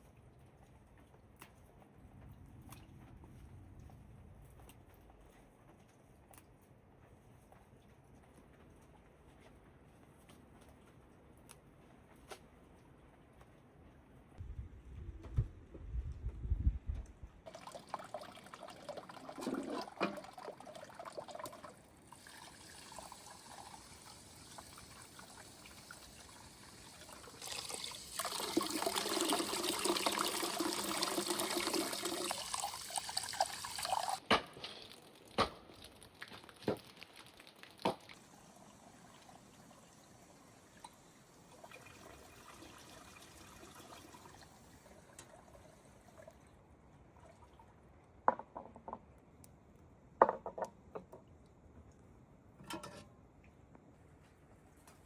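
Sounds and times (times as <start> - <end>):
water pouring: 17.5 - 48.0
water trickling: 17.5 - 48.0.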